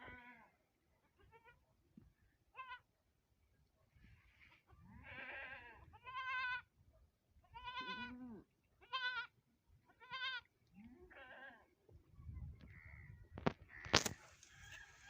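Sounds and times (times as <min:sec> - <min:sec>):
farm animal high-pitched cries: 0:02.5 - 0:02.9, 0:04.5 - 0:06.7, 0:07.4 - 0:10.5, 0:11.1 - 0:11.7.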